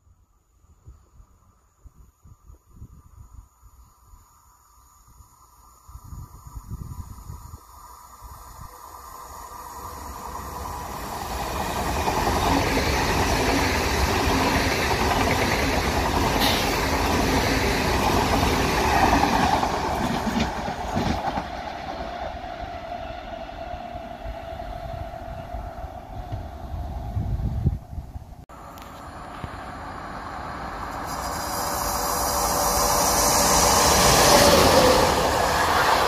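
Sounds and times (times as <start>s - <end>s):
train passing at speed: 5.3s - 36.0s.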